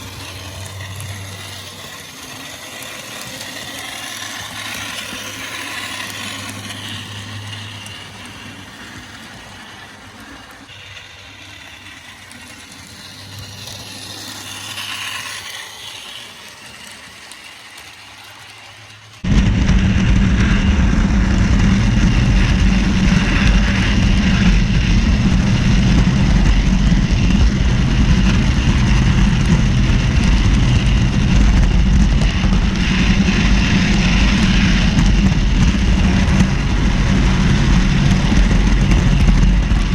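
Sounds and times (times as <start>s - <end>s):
model train motor humming: 0.0s - 19.4s, 21.0s - 39.9s
diesel engine running: 19.2s - 39.9s.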